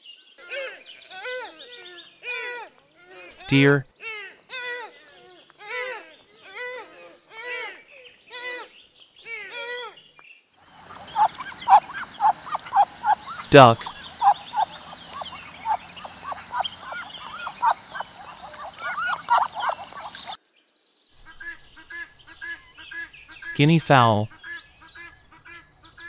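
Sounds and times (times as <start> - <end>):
deer call: 10.7 - 20.4
ducks quacking: 10.7 - 20.4
faint bird calls: 10.7 - 20.4.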